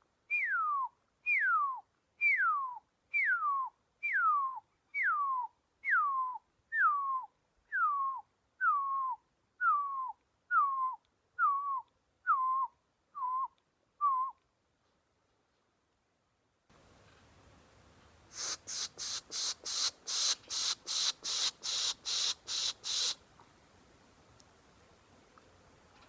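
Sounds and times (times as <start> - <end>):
owl whistled call: 0.3 - 14.4, 18.3 - 23.2.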